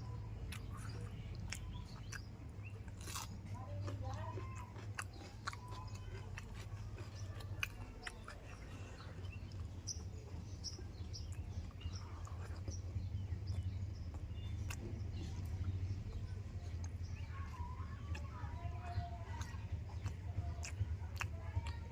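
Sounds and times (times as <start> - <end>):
person chewing food: 0.0 - 21.9
steady low hum: 0.0 - 21.9
wet mouth clicks: 14.1 - 15.8, 19.3 - 21.8.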